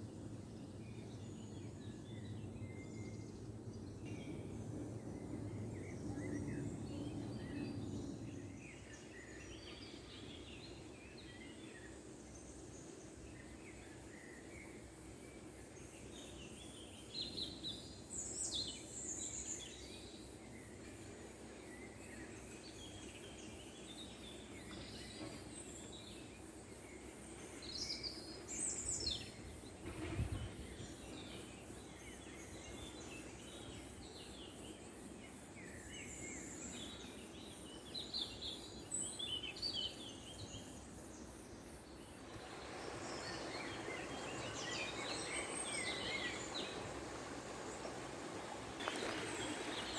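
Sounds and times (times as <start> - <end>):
steady background hiss: 0.0 - 49.9
small birds chirping: 41.8 - 49.9.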